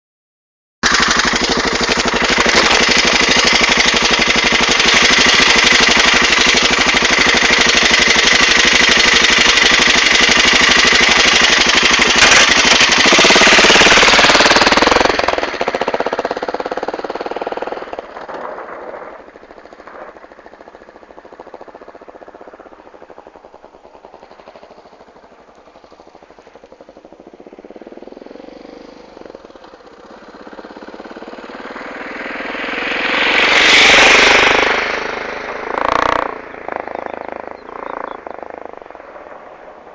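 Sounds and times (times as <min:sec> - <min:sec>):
motorcycle engine: 0:00.8 - 0:39.9
motorcycle riding away: 0:00.8 - 0:39.9.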